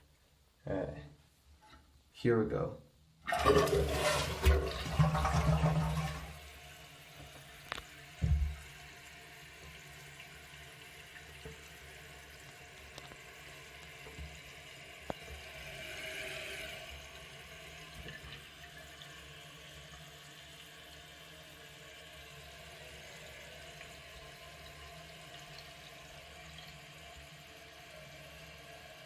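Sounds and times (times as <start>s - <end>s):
water running into toilet tank: 3.2s - 29.0s
short thump: 8.2s - 8.6s.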